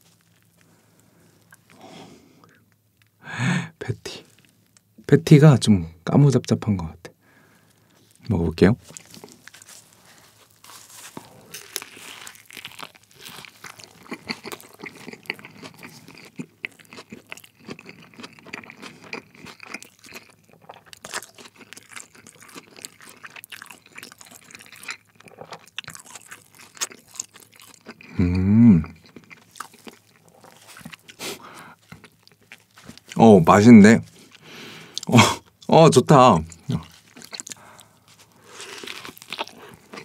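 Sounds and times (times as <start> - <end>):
chewing a burger: 0.0 - 3.2, 7.5 - 35.8, 36.4 - 40.0
person humming mm: 28.1 - 29.0.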